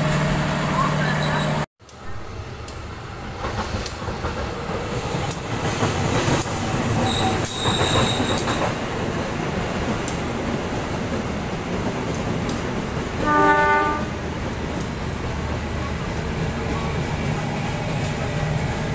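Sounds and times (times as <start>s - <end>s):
train wheels rumbling on rail: 0.0s - 18.9s
wheel squeal: 0.7s - 1.6s, 7.0s - 8.7s.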